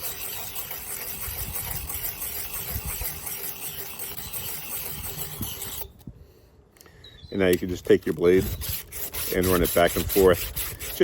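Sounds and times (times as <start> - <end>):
blade scraping on sharpening plate: 0.0 - 6.0.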